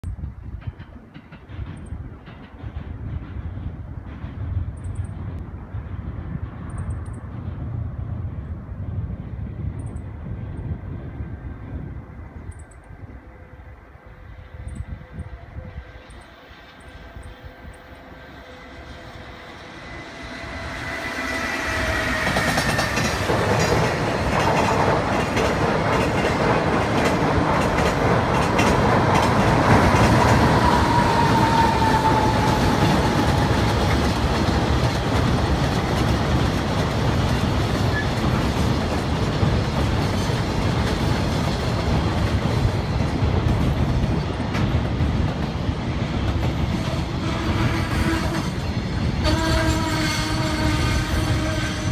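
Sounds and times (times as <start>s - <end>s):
train wheel clatter: 0.0s - 7.8s, 19.9s - 51.9s
freight train rumble: 0.0s - 51.9s.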